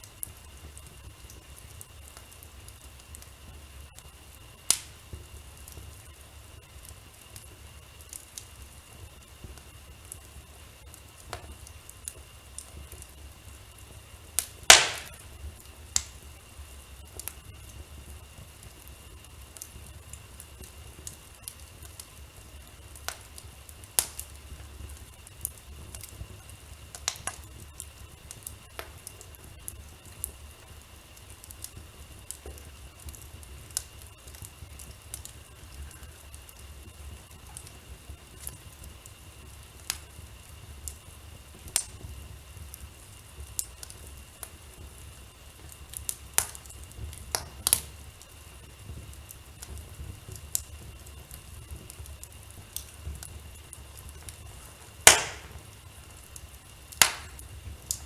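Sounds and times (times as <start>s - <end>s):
wood fire crackling: 0.0s - 58.0s
loud fire pop: 14.4s - 15.3s, 54.9s - 55.7s, 57.0s - 57.5s.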